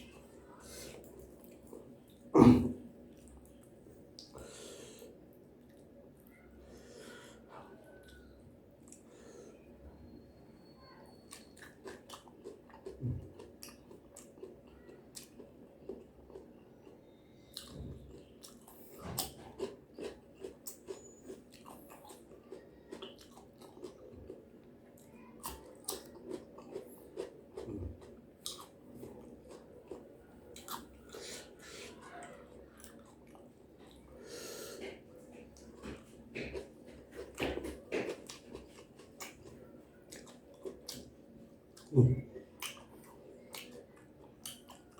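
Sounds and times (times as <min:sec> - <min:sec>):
chewing and biting crunchy food: 0:11.3 - 0:31.7, 0:34.8 - 0:44.9.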